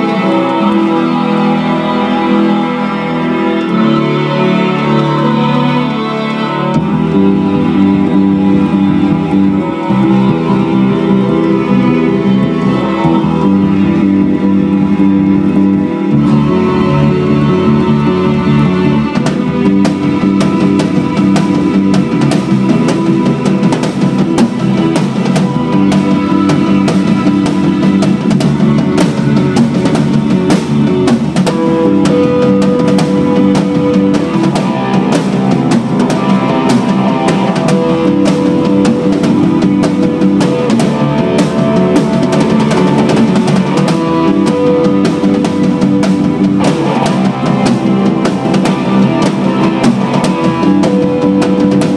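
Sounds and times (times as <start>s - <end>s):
bass guitar: 0.0s - 51.9s
electric guitar: 0.0s - 51.9s
drum kit beat: 18.1s - 51.9s.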